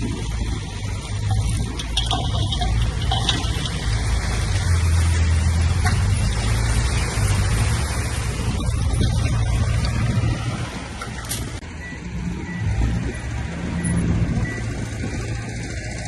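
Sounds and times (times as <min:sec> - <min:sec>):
heavy diesel engine droning: 0:00.0 - 0:16.0
light metal clanks: 0:01.2 - 0:04.0.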